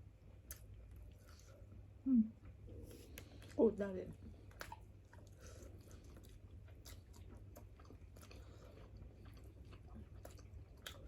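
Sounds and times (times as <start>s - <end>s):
low steady hum: 0.0s - 11.0s
chewing and mouth clicks: 4.4s - 11.0s.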